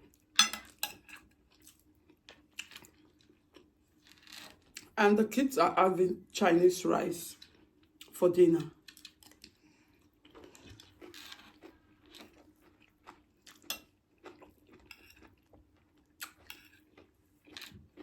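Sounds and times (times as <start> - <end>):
person chewing and biting: 8.8 - 18.0.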